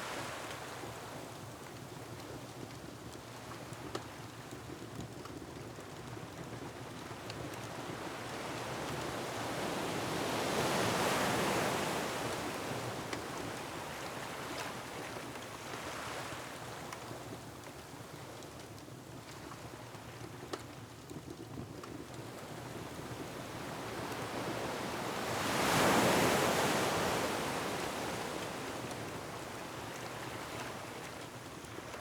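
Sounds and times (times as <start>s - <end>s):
waves surging on rocky shore: 24.2s - 28.9s.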